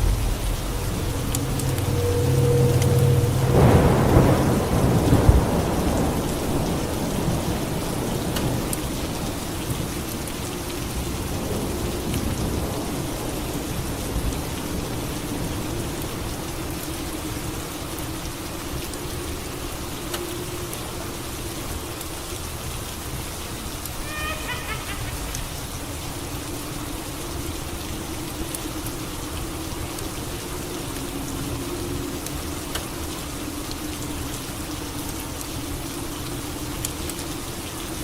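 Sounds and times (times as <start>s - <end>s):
thunderclap rumbling: 0.0s - 10.2s
heavy rain: 0.0s - 38.0s.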